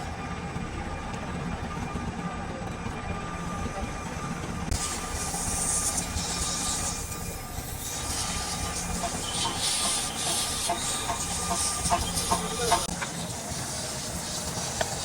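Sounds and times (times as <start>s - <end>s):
steady low hum: 0.0s - 15.0s
hissing: 4.8s - 15.0s.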